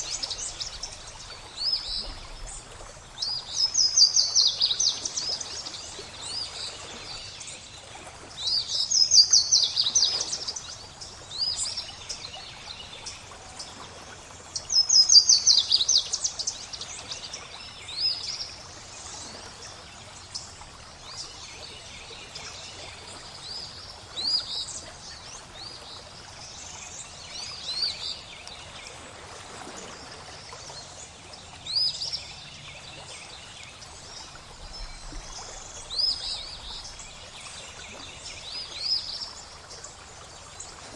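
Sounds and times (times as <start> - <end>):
water trickling: 0.0 - 40.9
songbirds singing: 31.8 - 40.9.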